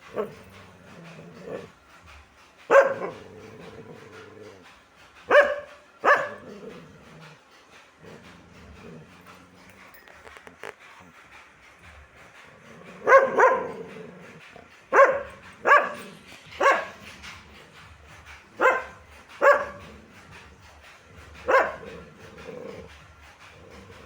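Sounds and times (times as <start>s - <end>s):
dog barking: 2.7s - 3.2s, 5.3s - 6.4s, 13.0s - 13.9s, 14.9s - 17.0s, 18.6s - 19.8s, 21.4s - 22.0s.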